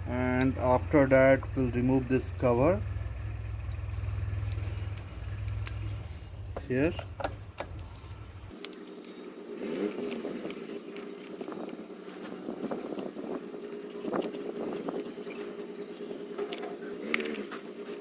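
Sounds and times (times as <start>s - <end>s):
hand tools clicking on metal: 0.3s - 0.8s, 3.7s - 11.1s.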